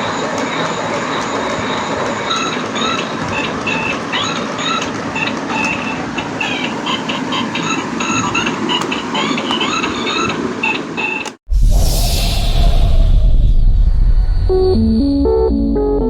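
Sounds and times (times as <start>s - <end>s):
toy car rattling whir: 0.4s - 10.5s
electronic beeping tune: 14.4s - 16.0s.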